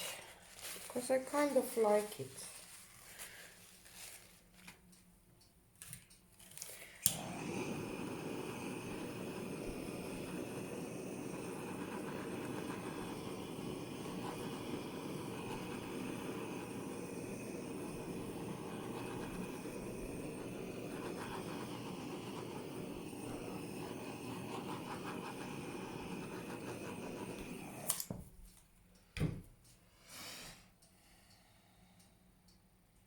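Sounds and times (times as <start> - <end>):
faint handling sounds: 0.0 - 5.1, 5.8 - 7.0
blow dryer running: 7.0 - 28.1.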